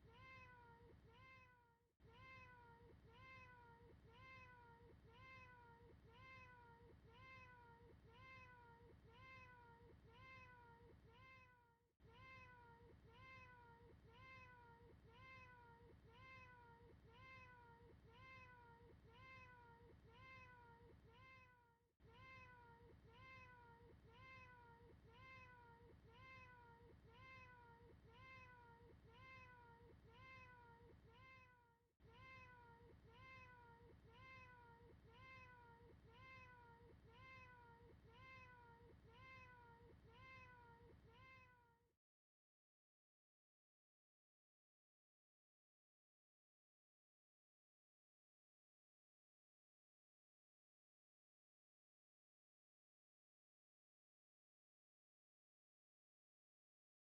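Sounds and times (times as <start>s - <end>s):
faint cat meow: 0.0s - 41.8s.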